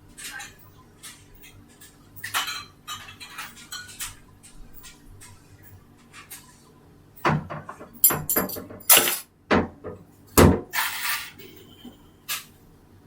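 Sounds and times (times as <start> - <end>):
hard objects knocking and clattering: 7.2 - 10.8.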